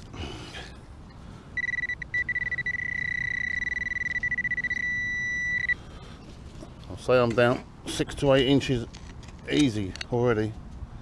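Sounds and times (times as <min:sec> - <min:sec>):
metal detector high-pitched beep: 0:01.6 - 0:05.8.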